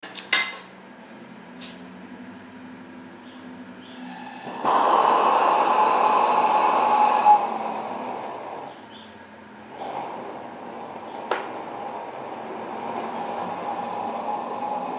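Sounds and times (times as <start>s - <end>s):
gas hissing through valve: 4.0s - 8.7s, 9.7s - 14.9s.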